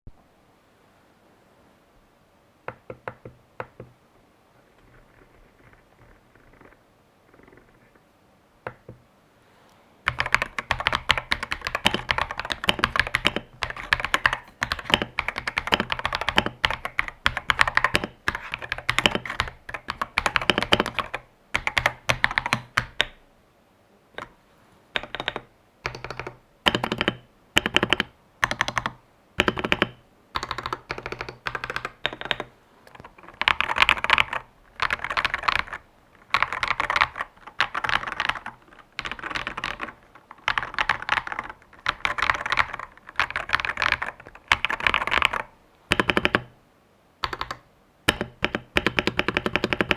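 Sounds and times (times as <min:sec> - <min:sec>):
mechanical keyboard typing: 0:10.1 - 0:23.2, 0:25.0 - 0:46.5, 0:47.2 - 0:49.9.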